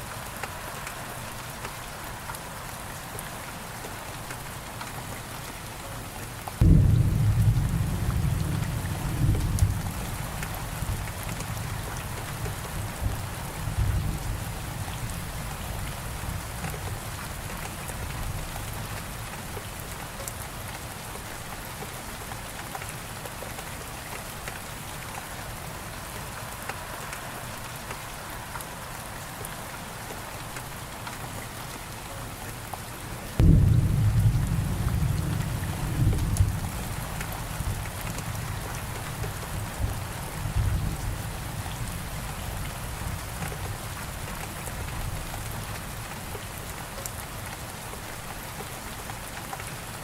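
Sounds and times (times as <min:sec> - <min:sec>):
steady rain: 0:00.0 - 0:50.0
loud thunder clap: 0:06.6 - 0:14.3, 0:33.4 - 0:41.0
thunder rumbling: 0:06.6 - 0:18.8, 0:33.4 - 0:44.0.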